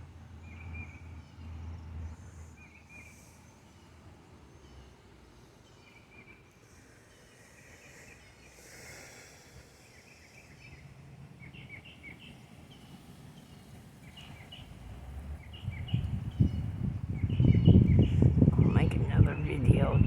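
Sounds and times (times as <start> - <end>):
outdoor background hum: 0.0 - 20.0
small birds chirping: 0.4 - 20.0
low rumble: 14.9 - 20.0.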